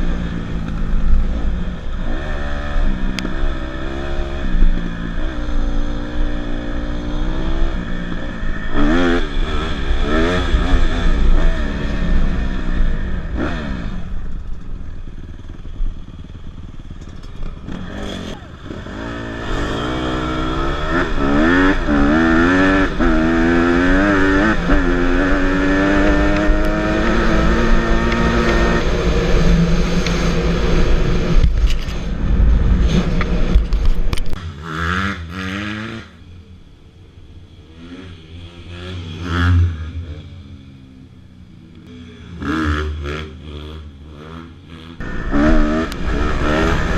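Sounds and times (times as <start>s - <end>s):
dirt bike engine revving: 0.0s - 14.5s, 15.2s - 31.5s, 34.4s - 36.2s, 37.6s - 40.8s, 41.8s - 46.9s
wind rumbling on microphone: 24.6s - 34.4s.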